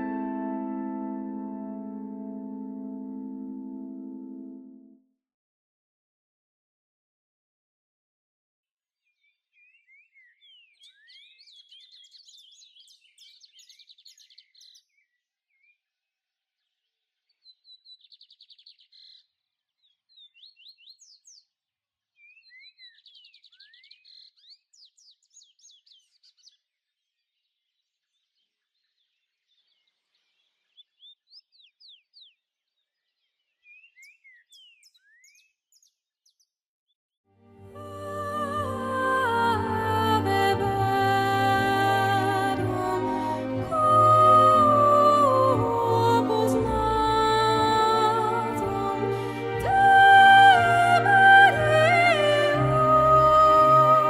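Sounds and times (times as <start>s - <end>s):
songbird singing high chirps: 9.6s - 15.0s, 33.6s - 36.4s.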